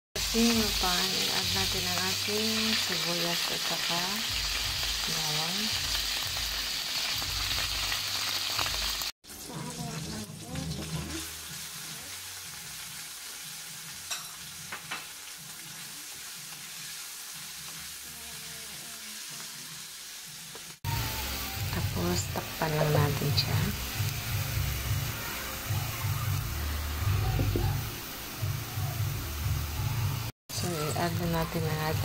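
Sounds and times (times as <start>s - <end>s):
chicken frying in a wok: 0.2s - 32.0s
onion sizzling in hot oil: 0.2s - 32.0s.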